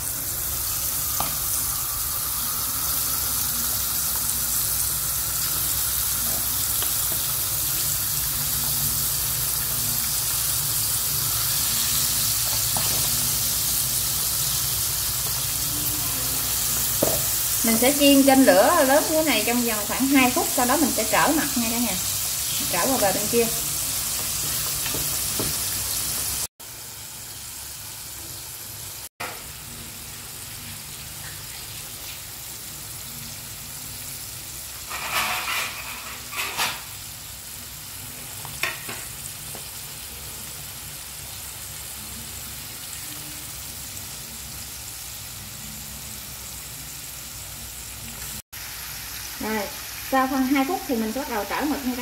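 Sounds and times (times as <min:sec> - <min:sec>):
squid sizzling in hot oil: 0:00.0 - 0:52.0.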